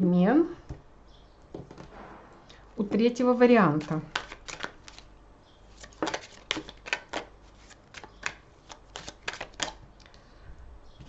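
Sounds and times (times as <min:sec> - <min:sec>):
cards being shuffled: 0:03.7 - 0:05.1, 0:05.7 - 0:09.8.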